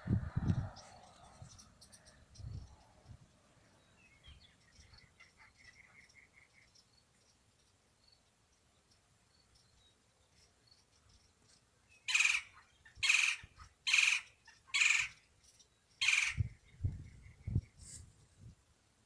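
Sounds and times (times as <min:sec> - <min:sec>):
bird giving harsh calls: 0:12.1 - 0:15.2, 0:16.0 - 0:16.5.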